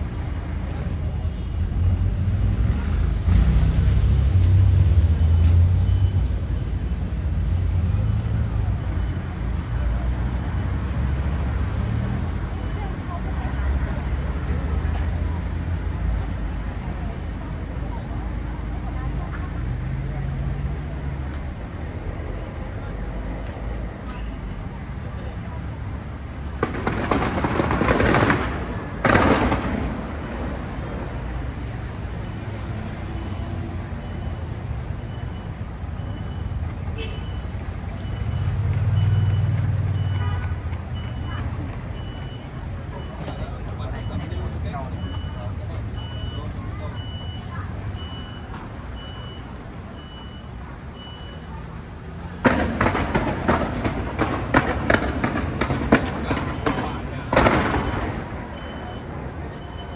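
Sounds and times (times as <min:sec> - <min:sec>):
fireworks bangs and crackles: 0:23.4 - 0:47.1, 0:48.0 - 0:59.9
fireworks exploding: 0:25.9 - 0:34.6, 0:51.8 - 0:59.9.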